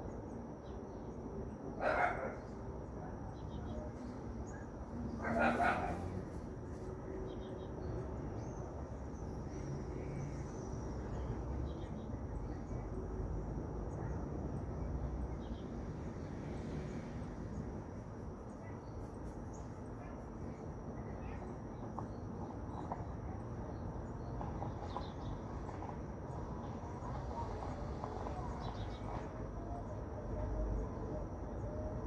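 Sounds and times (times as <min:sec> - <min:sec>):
insect drone: 0:00.0 - 0:32.0
low background noise: 0:00.0 - 0:32.0.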